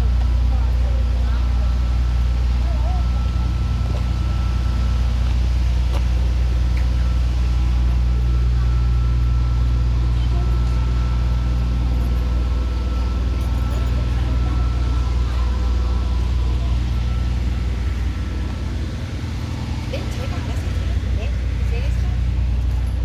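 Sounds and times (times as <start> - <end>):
motor traffic rumble: 0.0 - 23.0.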